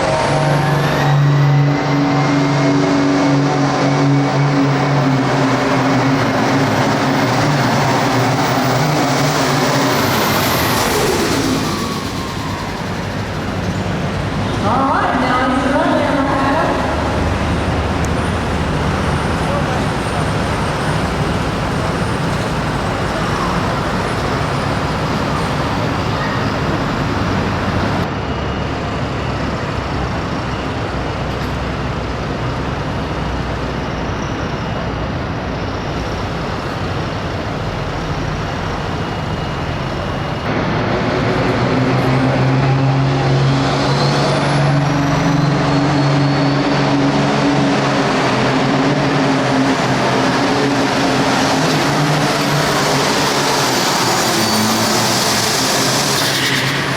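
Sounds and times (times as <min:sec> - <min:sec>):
tractor diesel engines roaring: 0:00.0 - 0:56.9
high whistle rising in pitch: 0:09.4 - 0:13.5.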